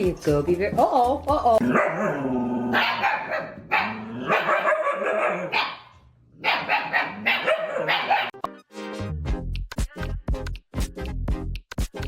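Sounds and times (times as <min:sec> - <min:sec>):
dog barking: 0:01.6 - 0:08.4.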